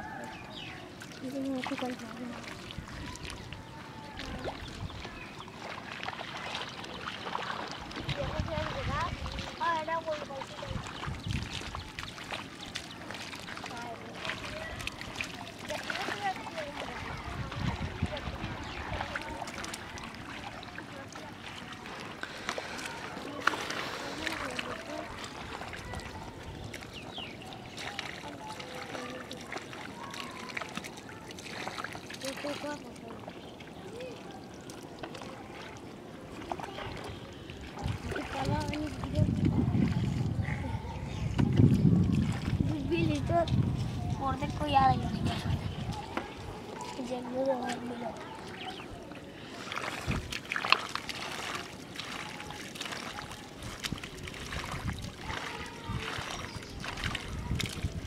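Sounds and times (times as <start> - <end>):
faint voices: 0.0 - 58.0
splashing in muddy water: 0.0 - 58.0
wet splats and clicks: 49.8 - 55.6.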